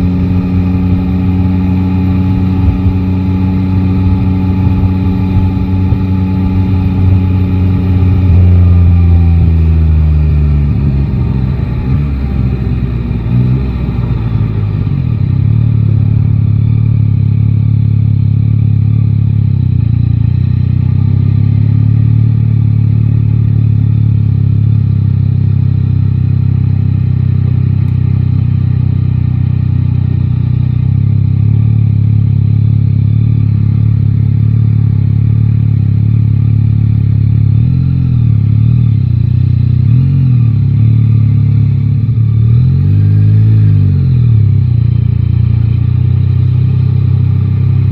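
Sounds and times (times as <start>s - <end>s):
motorcycle engine cruising: 0.0s - 47.9s.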